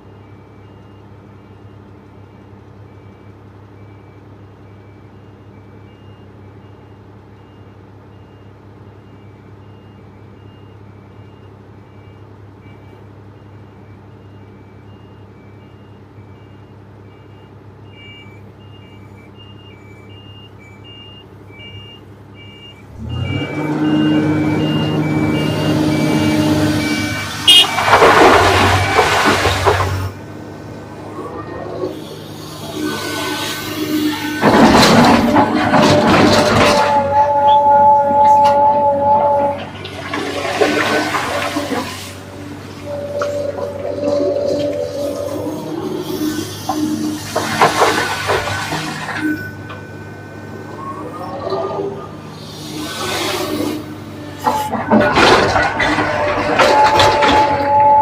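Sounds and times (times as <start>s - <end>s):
faint beep alarm: 0.0s - 27.8s, 49.2s - 52.1s
excavator diesel engine running: 0.0s - 58.0s
loud harsh noise: 24.8s - 30.2s, 31.0s - 58.0s.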